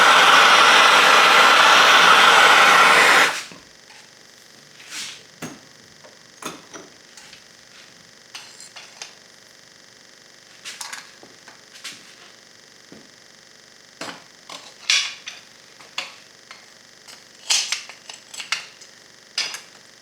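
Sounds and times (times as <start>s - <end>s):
loud steady rushing noise: 0.0s - 3.4s.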